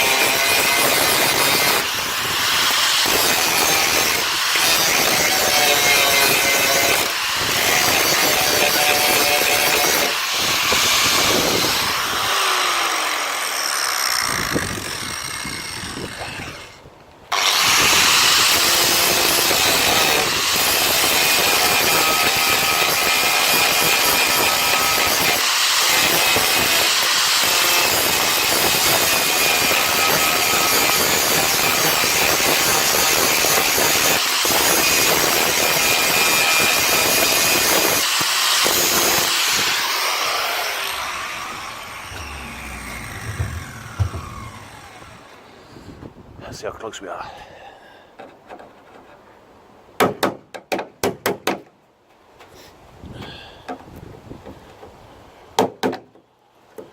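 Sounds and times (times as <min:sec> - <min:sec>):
angle grinder cutting sheet steel: 0:00.0 - 0:16.8, 0:17.4 - 0:45.5.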